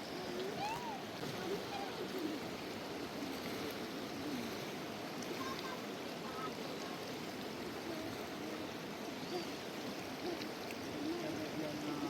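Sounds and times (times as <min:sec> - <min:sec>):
rushing river: 0:00.0 - 0:12.0
faint voices: 0:00.1 - 0:02.6.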